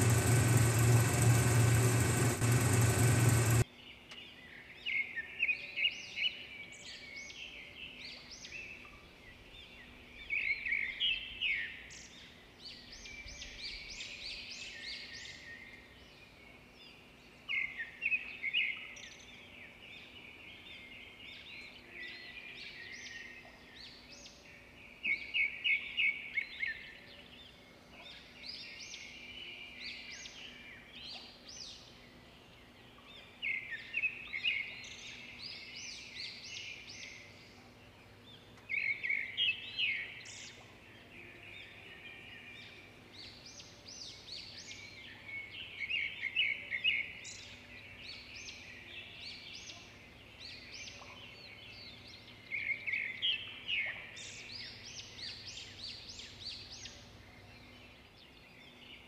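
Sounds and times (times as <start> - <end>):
birds chirping: 0.0 - 3.6.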